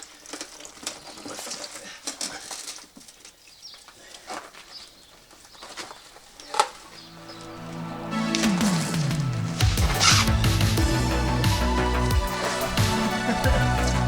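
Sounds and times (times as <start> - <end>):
music: 7.2 - 14.0.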